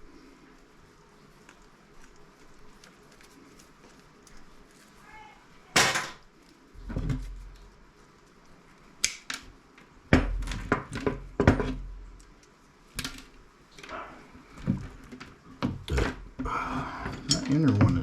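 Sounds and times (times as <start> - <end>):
knocks and clatters of scrap parts: 5.8 - 6.2.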